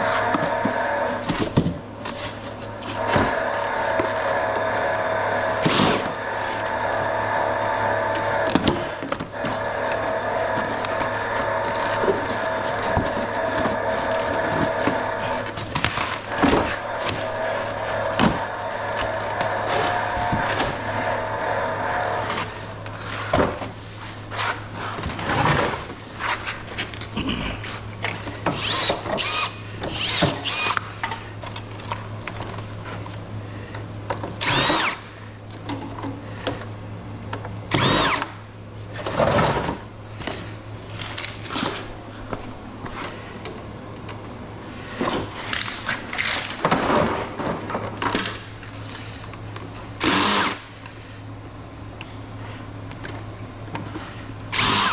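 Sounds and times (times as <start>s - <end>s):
parts knocking and clattering: 0.0s - 4.8s, 7.6s - 23.8s, 45.0s - 49.7s
low hum: 0.0s - 29.8s
power drill whirring: 2.4s - 23.3s, 28.5s - 31.0s, 34.4s - 35.2s, 37.7s - 38.4s, 50.0s - 50.7s, 54.5s - 54.9s.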